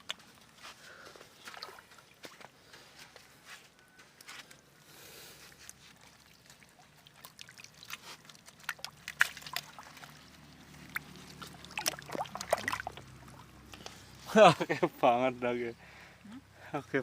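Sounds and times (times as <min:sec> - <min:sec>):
water splashing and sloshing: 0:00.0 - 0:03.3, 0:04.2 - 0:15.2
water drips: 0:01.3 - 0:02.6, 0:05.4 - 0:14.3.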